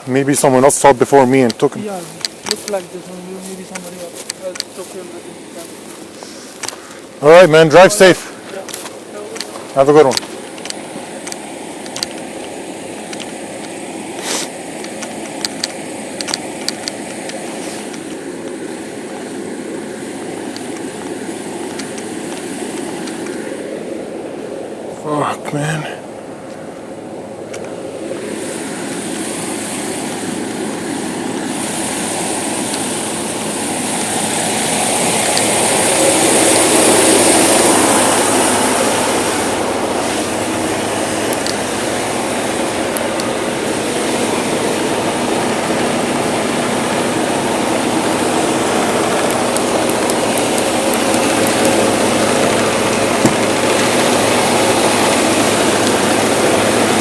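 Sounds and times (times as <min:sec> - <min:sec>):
road noise: 0:00.0 - 0:57.0
truck engine: 0:00.0 - 0:57.0
sharp click: 0:09.4 - 0:18.0.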